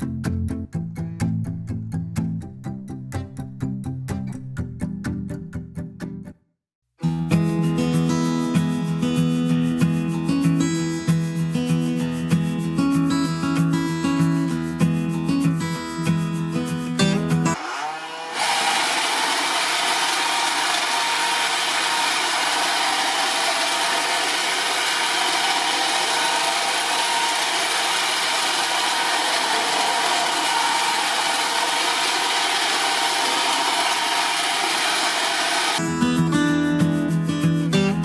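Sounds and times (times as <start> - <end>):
robot vacuum whirring: 17.6 - 35.8.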